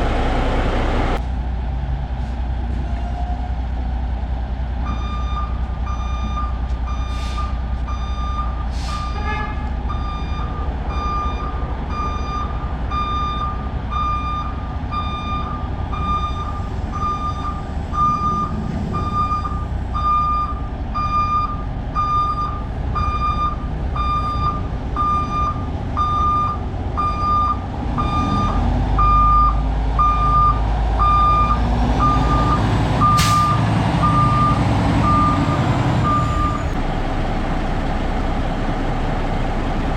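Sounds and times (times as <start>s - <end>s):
diesel engine running: 0.0s - 2.8s, 9.6s - 39.9s
reversing alarm beeping: 9.9s - 36.8s.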